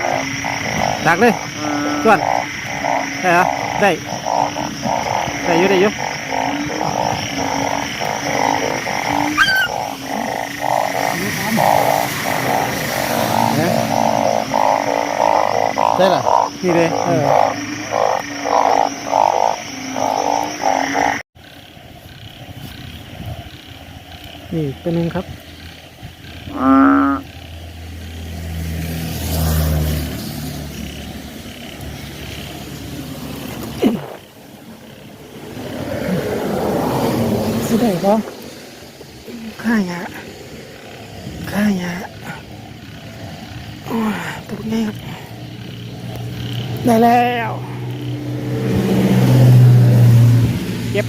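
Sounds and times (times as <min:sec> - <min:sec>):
chorus of frogs croaking: 0:00.0 - 0:51.0
rising chirp: 0:08.5 - 0:15.1
vehicle engine droning low: 0:42.4 - 0:51.0.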